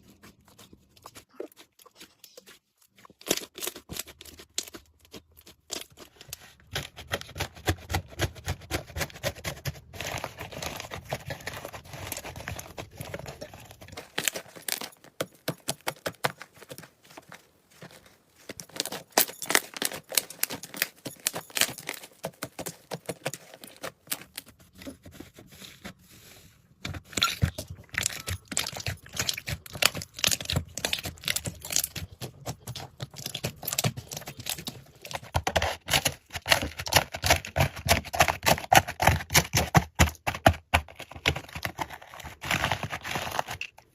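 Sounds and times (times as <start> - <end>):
slime squeezed crackling and popping: 27.2 - 34.7.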